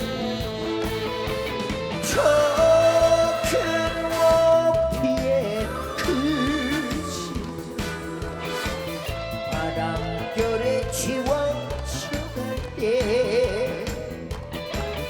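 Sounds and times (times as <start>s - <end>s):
live trot band music: 0.0s - 15.0s
person singing long notes: 2.1s - 11.7s.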